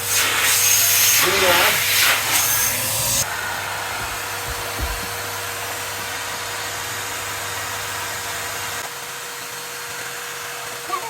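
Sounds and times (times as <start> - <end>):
vacuum cleaners whooshing whine: 0.0 - 11.0
low thump: 3.9 - 5.3.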